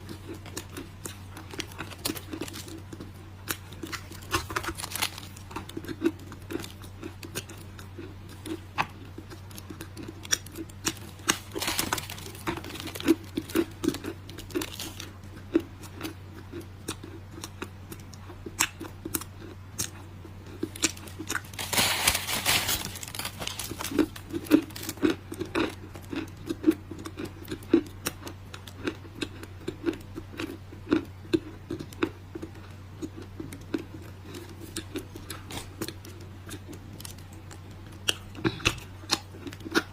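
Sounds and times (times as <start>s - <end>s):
steady low hum: 0.0s - 39.9s
dry clay crunching and crumbling: 9.2s - 15.1s, 20.5s - 26.3s.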